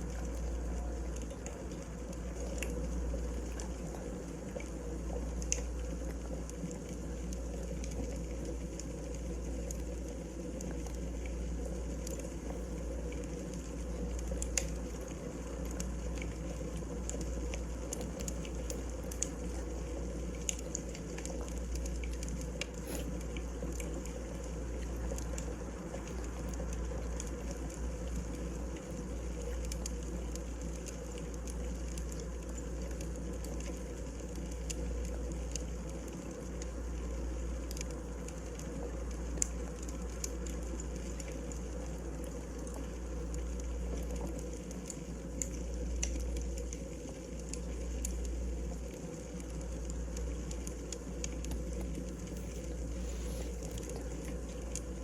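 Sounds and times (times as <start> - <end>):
fire flames rumbling: 0.0 - 55.0
logs crackling and popping: 0.0 - 55.0.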